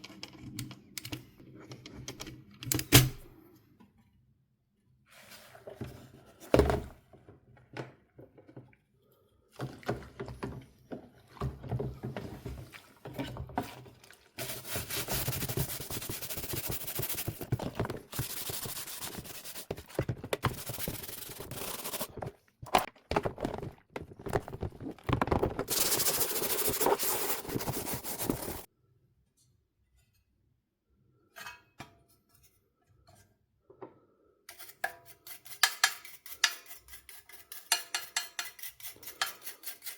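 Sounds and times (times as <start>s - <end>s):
hand rubbing and scrubbing: 14.4s - 22.9s, 24.4s - 28.7s
handling knocks and clicks: 15.3s - 28.6s.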